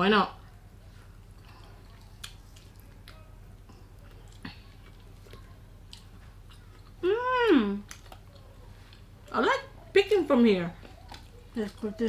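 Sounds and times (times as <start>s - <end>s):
quiet chewing: 0.4s - 10.0s, 10.7s - 12.0s.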